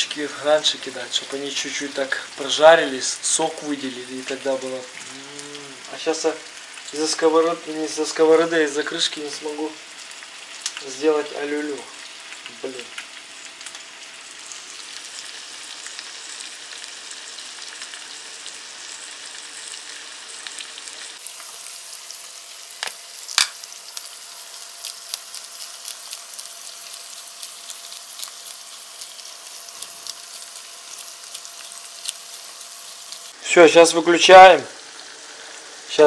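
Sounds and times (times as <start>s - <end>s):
eggs sizzling in a frying pan: 0.0s - 36.0s
sharp oil pops: 22.8s - 23.7s.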